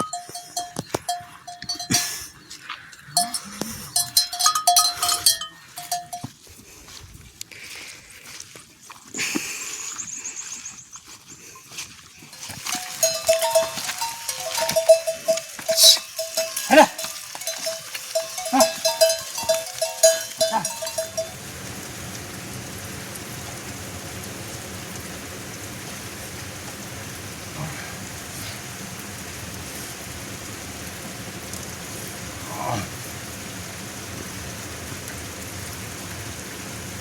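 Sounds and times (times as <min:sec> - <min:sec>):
livestock bells clanking: 0:00.0 - 0:06.4, 0:12.3 - 0:21.5
steady rain: 0:12.3 - 0:37.0.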